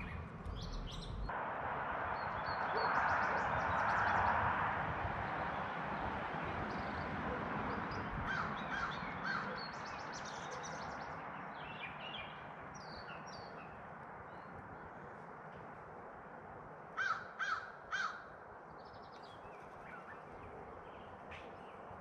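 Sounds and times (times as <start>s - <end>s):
high bird chirps and twitters: 0.0s - 1.3s
harsh bird caws: 8.2s - 9.7s, 16.9s - 18.4s.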